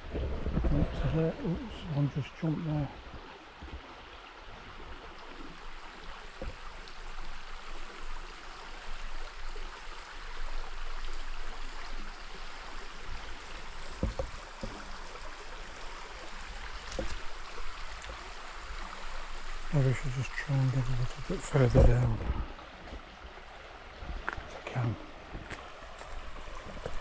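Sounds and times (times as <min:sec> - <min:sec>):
river water over rocks: 0:00.0 - 0:27.0
soft low knocks: 0:13.9 - 0:15.0, 0:21.0 - 0:23.1.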